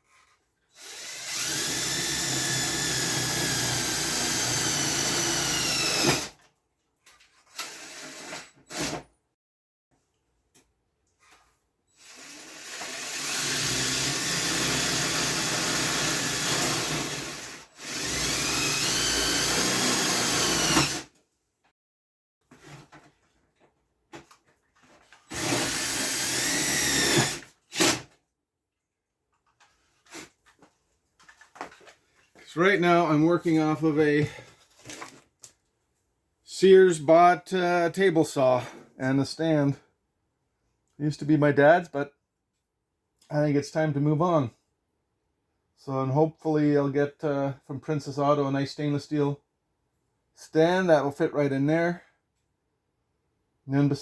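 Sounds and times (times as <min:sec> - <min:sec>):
power drill drilling steel: 0:00.8 - 0:06.4, 0:07.5 - 0:09.0, 0:12.0 - 0:21.1, 0:25.3 - 0:28.1.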